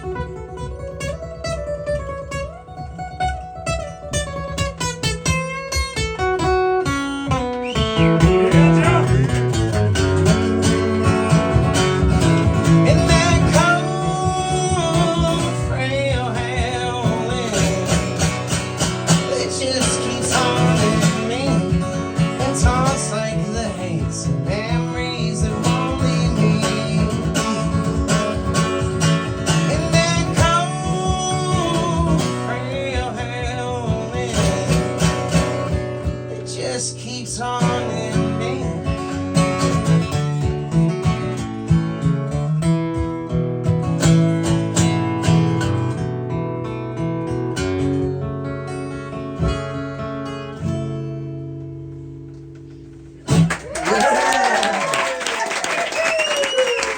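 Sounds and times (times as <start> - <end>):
strummed acoustic guitar: 0.0 - 53.6
person singing: 12.8 - 18.2, 29.6 - 35.0.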